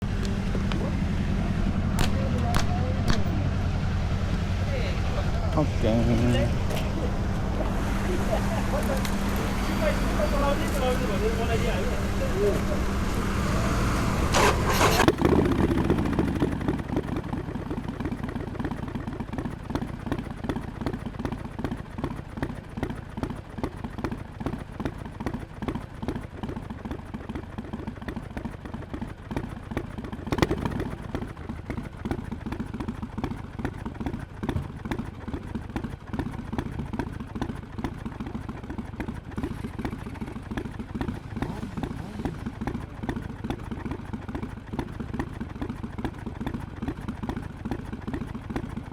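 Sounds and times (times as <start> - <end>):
motorcycle engine idling: 0.0 - 48.9
sharp knock: 2.0 - 3.5.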